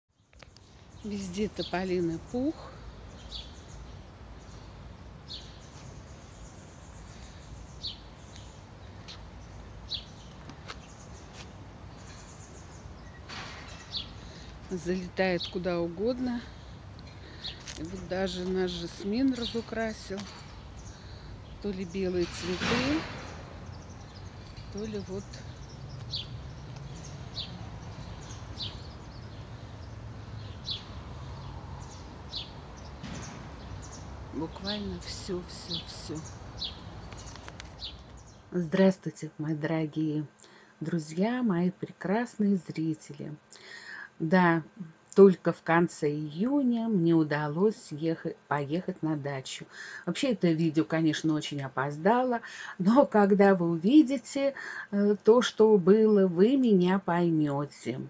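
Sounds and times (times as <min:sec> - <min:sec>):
small bird chirping: 0:00.1 - 0:38.5
steady low rumble: 0:01.0 - 0:38.6.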